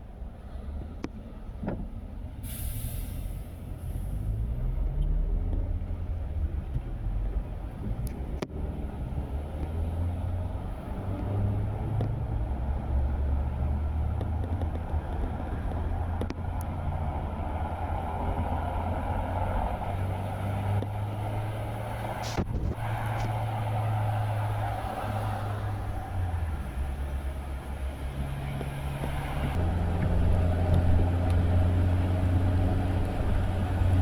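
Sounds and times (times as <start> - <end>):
car engine and road rumble: 0.0 - 34.0
tyres hissing on wet road: 2.4 - 4.7, 18.4 - 29.6.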